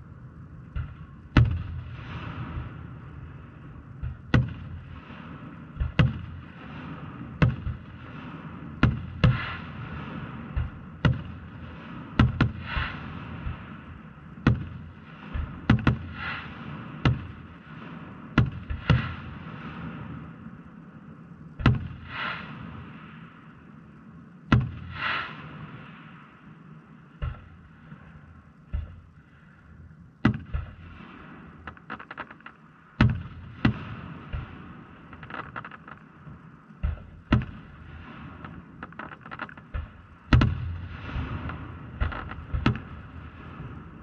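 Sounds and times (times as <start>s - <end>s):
firework shells booming: 0.6s - 20.7s, 21.6s - 23.4s, 24.5s - 29.4s, 30.2s - 44.0s
firework crackle: 0.8s - 20.8s, 21.4s - 23.9s, 24.5s - 44.0s.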